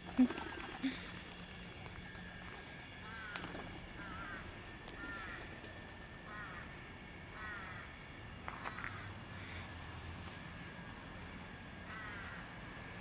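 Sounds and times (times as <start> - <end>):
bird calling: 0.0 - 9.7.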